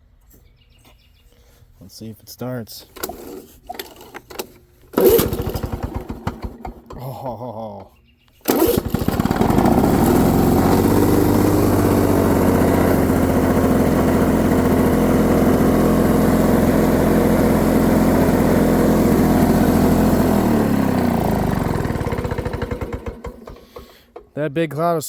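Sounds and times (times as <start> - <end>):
push mower engine running: 2.9 - 7.1, 8.4 - 24.4.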